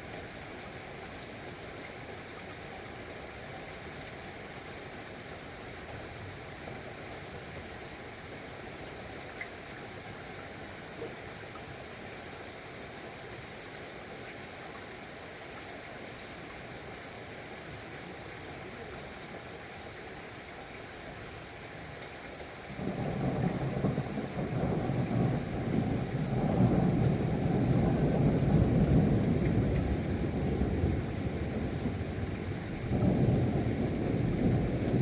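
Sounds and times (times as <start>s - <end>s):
steady rain: 0.0s - 35.0s
rumble of thunder: 22.8s - 35.0s.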